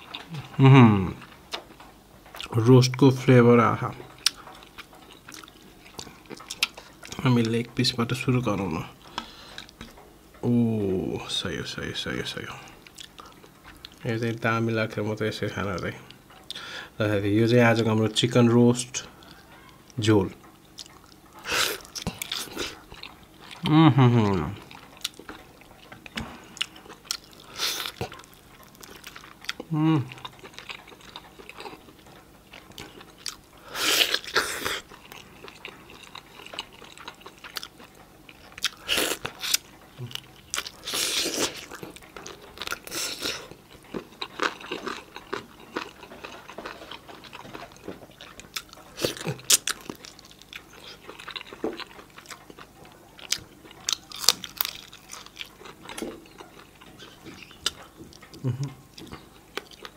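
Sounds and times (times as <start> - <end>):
person biting and chewing food: 20.8 - 23.7, 24.6 - 59.9.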